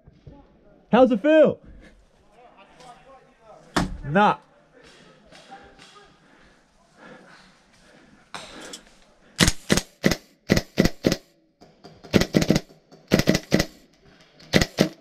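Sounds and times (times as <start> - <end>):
airsoft gun shots: 9.4 - 11.3, 12.1 - 13.8, 14.5 - 15.0.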